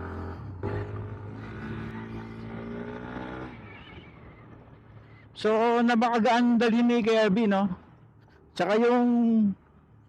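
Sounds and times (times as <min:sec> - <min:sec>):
scooter engine pulling away: 0:00.0 - 0:04.5.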